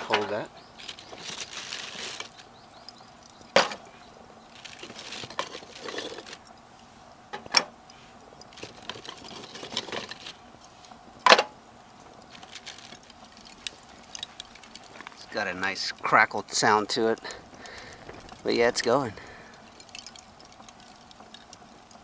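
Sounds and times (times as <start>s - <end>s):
charcoal fire crackling: 0.0s - 22.0s
sharp loud pops: 3.6s - 3.9s.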